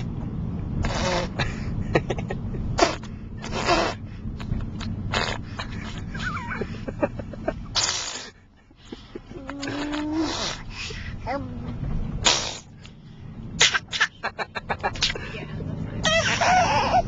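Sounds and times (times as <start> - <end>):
car cabin rumble: 0.0 - 17.0
baby making breathy huffing noises: 9.5 - 11.0
baby squeaking: 16.0 - 17.0.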